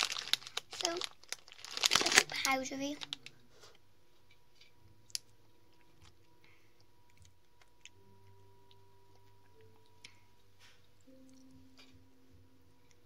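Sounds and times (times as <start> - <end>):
faint chewing: 4.6 - 12.0.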